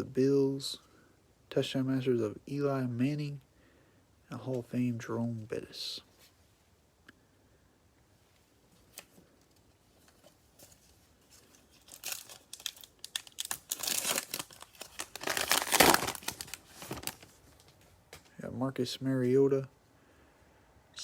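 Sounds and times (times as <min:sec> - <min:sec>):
cellophane wrapper tearing and crinkling: 0:11.2 - 0:17.4.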